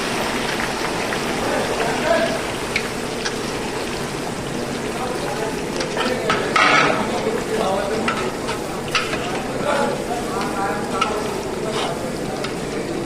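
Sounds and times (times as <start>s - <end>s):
food sizzling in a pot: 0.0s - 13.0s
ladle scraping a pot: 7.8s - 9.5s, 10.4s - 12.6s.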